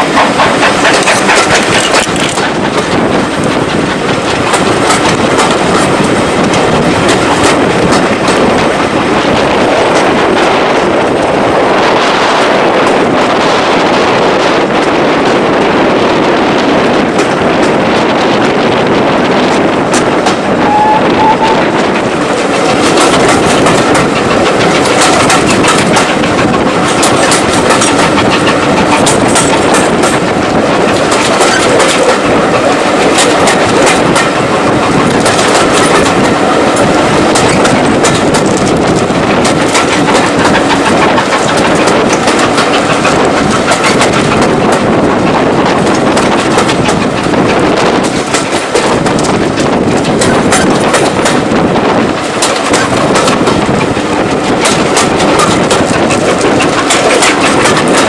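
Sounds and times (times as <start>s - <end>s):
train wheels clicking over rail joints: 0.0s - 58.0s.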